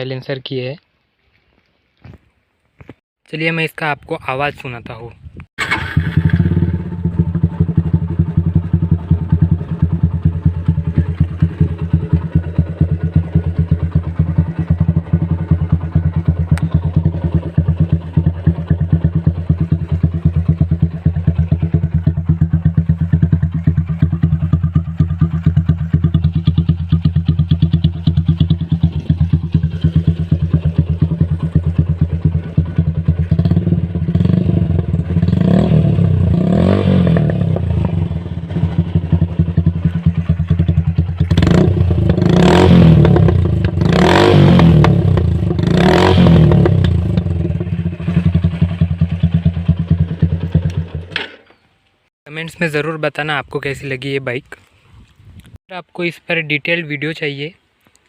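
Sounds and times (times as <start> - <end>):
motorcycle engine idling: 5.6 - 51.1
motorcycle engine revving: 5.6 - 51.3.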